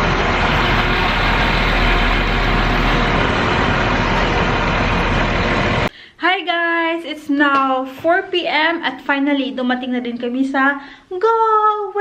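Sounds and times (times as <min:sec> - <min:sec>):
diesel train engine idling: 0:00.0 - 0:05.9.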